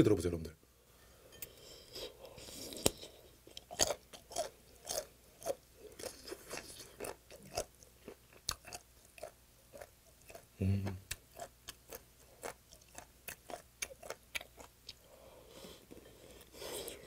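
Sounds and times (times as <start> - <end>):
crisp crunches of chewing: 2.5 - 10.5.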